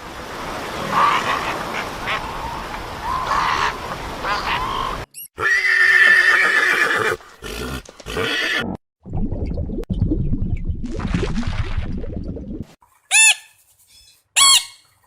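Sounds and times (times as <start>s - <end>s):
horse neighing: 5.4s - 8.7s.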